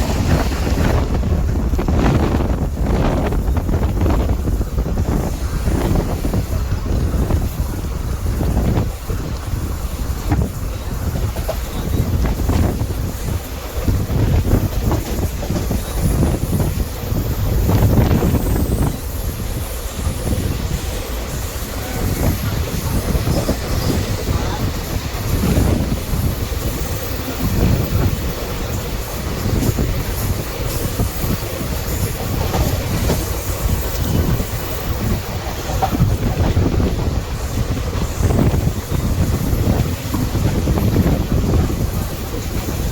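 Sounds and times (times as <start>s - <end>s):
wheels clattering over rails: 0.0s - 5.2s
train rumbling: 0.0s - 42.9s.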